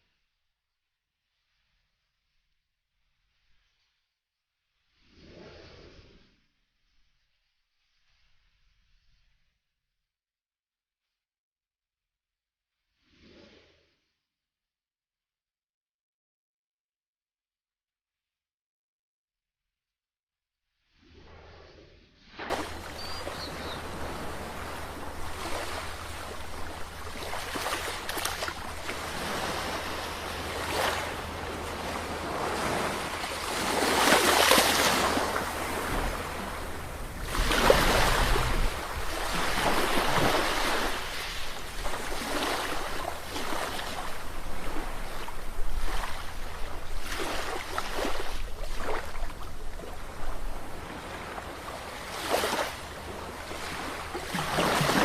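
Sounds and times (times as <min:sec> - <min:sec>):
ocean waves breaking: 0:22.5 - 0:55.0.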